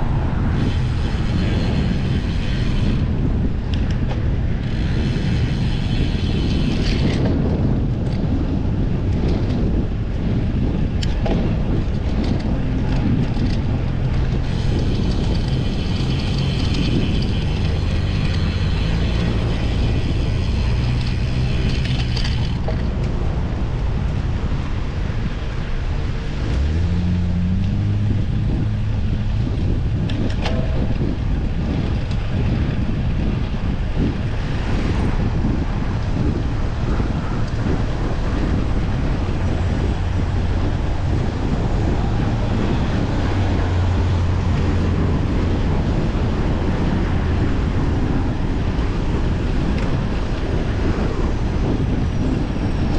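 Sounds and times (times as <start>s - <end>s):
wind rumble on microphone: 0.0s - 52.9s
bicycle freewheel ratchet ticking: 0.6s - 7.3s, 12.0s - 22.8s.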